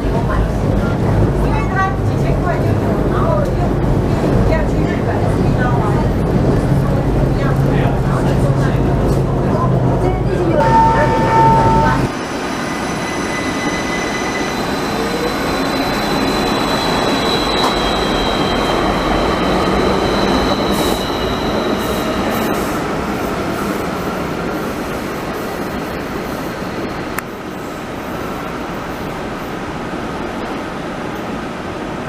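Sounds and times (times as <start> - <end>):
train rumble on track: 0.0 - 32.0
thin high squeal: 10.7 - 22.8.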